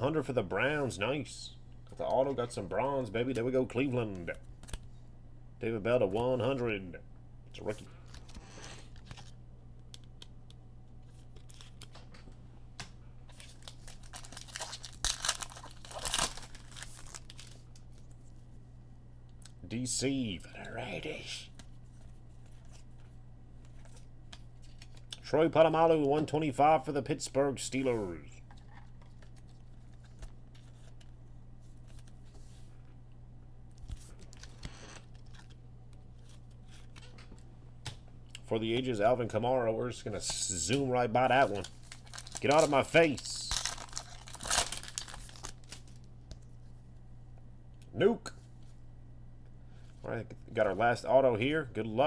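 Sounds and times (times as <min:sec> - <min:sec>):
low electrical hum: 0:00.0 - 0:52.0
foil pack tearing and crinkling: 0:13.3 - 0:17.7, 0:41.4 - 0:46.0
trading cards handled: 0:21.5 - 0:25.1, 0:28.4 - 0:32.7.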